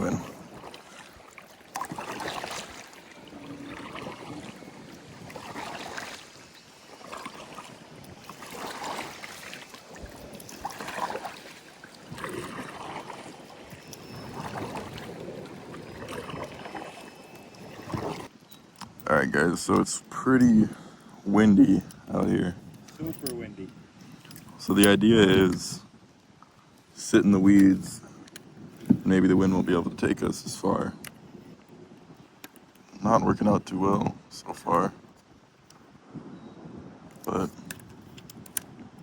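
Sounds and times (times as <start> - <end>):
paddle splashing through water: 0.0 - 18.3
wind buffeting microphone: 0.0 - 39.0.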